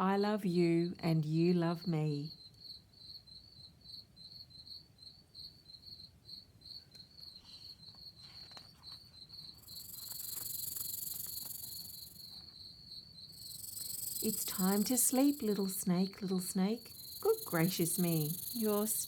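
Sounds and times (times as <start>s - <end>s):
crickets chirping: 2.2s - 19.0s
soft high hiss: 9.6s - 12.4s, 13.4s - 19.0s.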